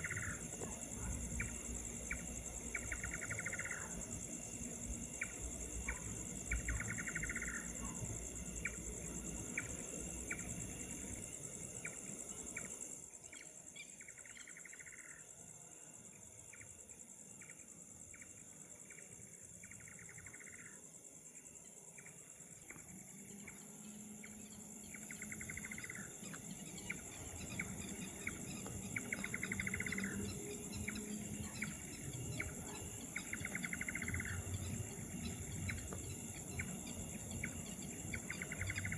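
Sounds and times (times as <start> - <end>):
crickets trilling: 0.0 - 38.9
rapid pulsing insect call: 0.0 - 38.9
short insect chirps: 0.0 - 38.9.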